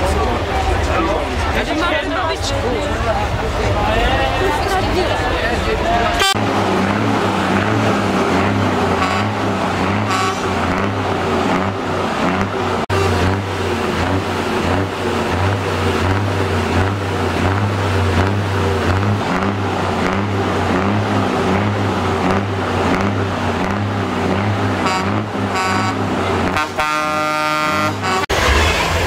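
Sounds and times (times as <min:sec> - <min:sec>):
truck diesel engine running: 0:00.0 - 0:29.0
truck horn: 0:06.1 - 0:29.0.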